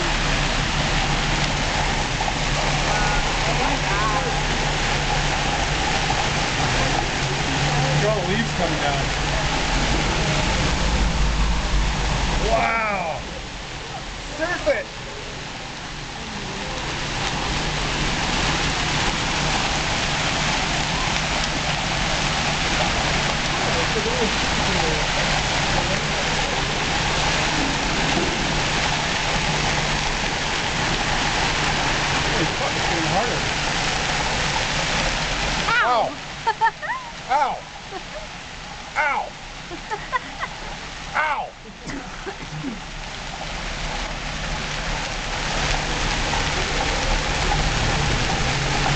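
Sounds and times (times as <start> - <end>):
hail and rain pelting down: 0.0 - 48.9.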